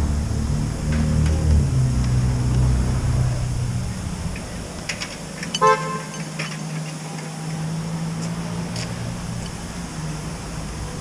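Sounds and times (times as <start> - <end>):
engine running: 0.0 - 11.0
short horn toot: 5.6 - 6.2.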